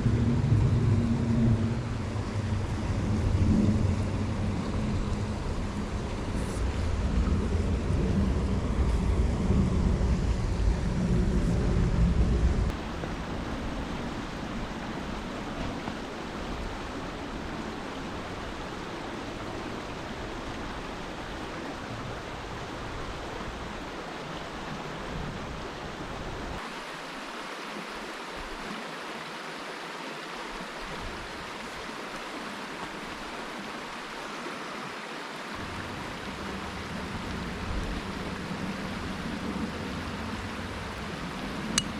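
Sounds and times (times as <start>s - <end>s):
wind buffeting microphone: 0.0s - 18.8s
river rushing: 0.0s - 41.9s.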